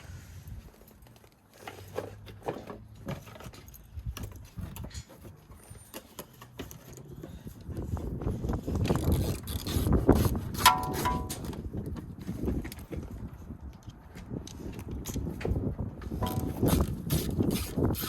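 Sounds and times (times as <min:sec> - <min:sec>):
hand tools knocking on metal: 0:10.6 - 0:11.5.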